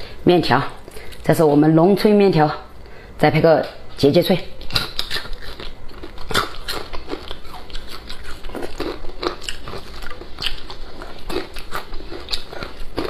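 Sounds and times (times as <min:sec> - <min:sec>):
person chewing noodles: 0:04.6 - 0:13.0.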